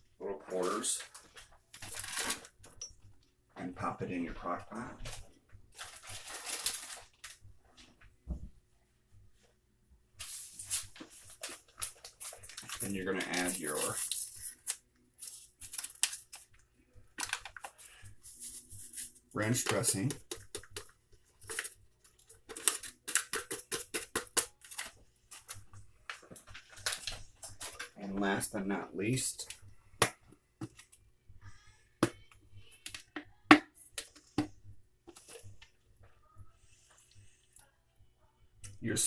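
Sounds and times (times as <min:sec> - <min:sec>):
packet crinkling: 0:01.8 - 0:02.6, 0:05.8 - 0:07.4, 0:10.6 - 0:16.5.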